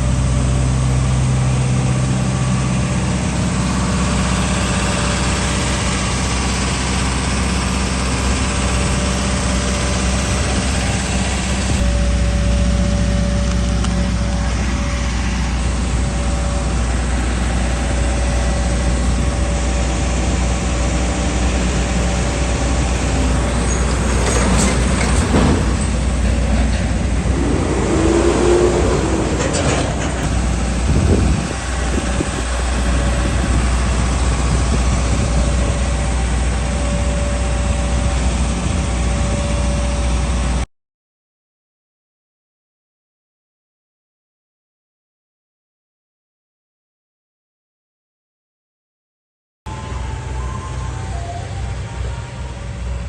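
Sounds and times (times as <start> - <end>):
traffic passing by: 0.0 - 38.4
vehicle engine running: 0.0 - 40.6.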